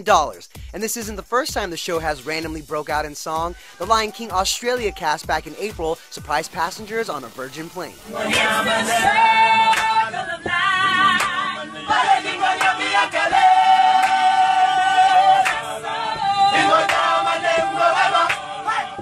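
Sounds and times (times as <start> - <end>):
group singing a cappella: 8.0 - 19.0.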